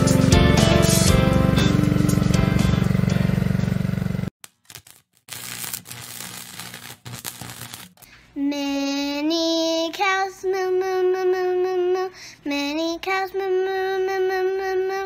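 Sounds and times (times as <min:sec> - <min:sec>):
child singing: 0:08.4 - 0:15.0.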